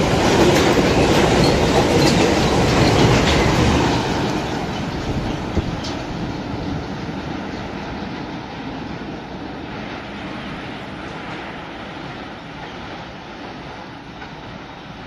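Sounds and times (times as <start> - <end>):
train wheels clicking over rail joints: 0.0 - 8.5
train rolling along track: 0.0 - 15.0.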